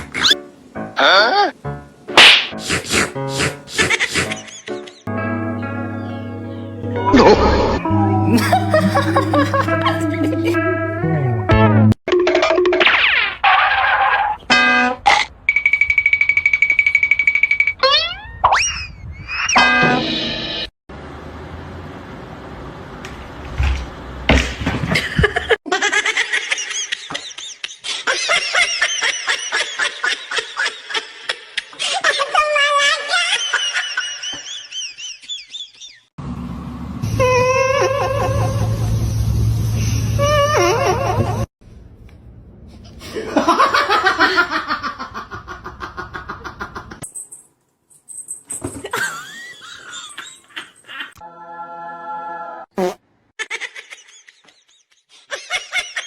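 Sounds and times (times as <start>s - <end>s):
person laughing hard: 2.7s - 5.0s, 7.1s - 10.7s, 43.0s - 47.0s
high-pitched laughter: 3.7s - 5.1s, 7.1s - 10.7s, 25.3s - 36.1s, 37.2s - 38.9s, 40.2s - 41.5s, 48.8s - 51.2s.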